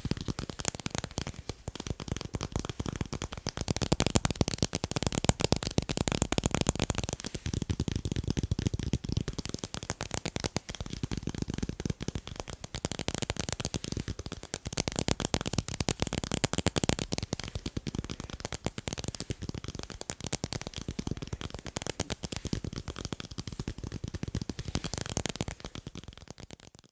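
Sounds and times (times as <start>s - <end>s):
fast tapping on tape: 0.0s - 26.9s.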